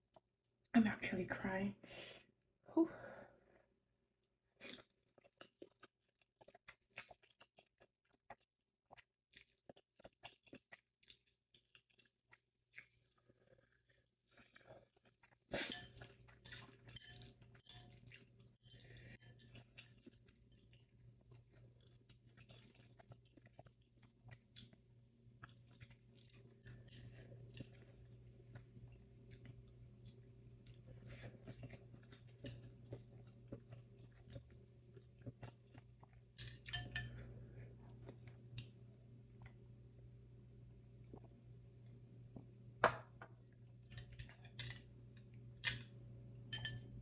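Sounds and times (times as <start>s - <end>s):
chewing noodles: 4.6s - 39.6s.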